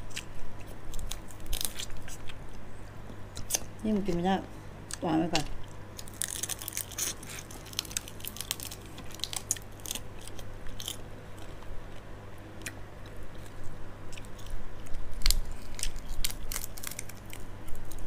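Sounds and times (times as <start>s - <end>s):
low steady hum: 0.0s - 18.0s
shells crackling and crunching: 0.9s - 2.4s, 6.0s - 12.0s, 14.2s - 18.0s.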